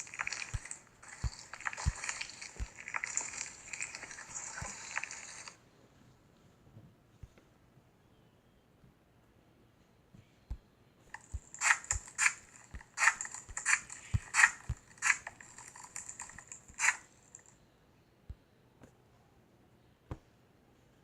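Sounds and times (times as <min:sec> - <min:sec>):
slime squishing crackles and pops: 0:00.0 - 0:05.6.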